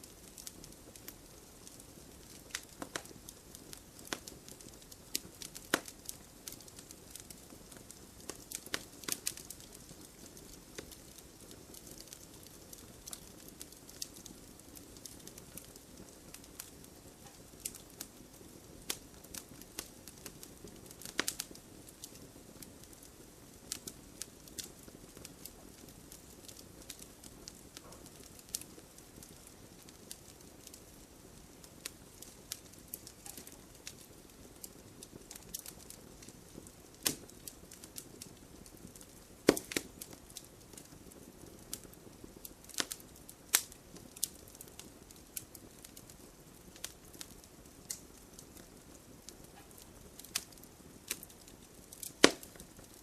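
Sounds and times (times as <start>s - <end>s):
burning wood crackling and popping: 0.0s - 53.0s
campfire flame rumble: 0.0s - 53.0s.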